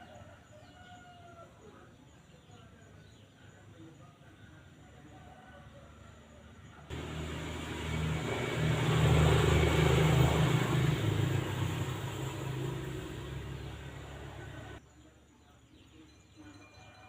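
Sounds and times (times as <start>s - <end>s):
vehicle passing by: 6.9s - 14.8s.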